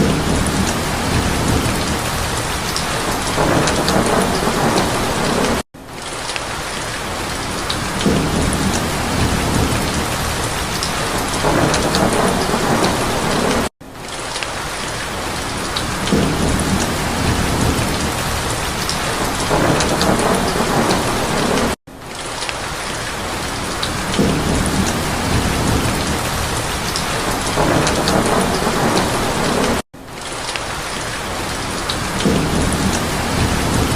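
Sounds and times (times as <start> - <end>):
low rolls of thunder: 0.0 - 5.6, 7.8 - 13.7, 16.0 - 21.8, 23.9 - 29.8, 32.0 - 33.9
steady rain: 0.0 - 33.9.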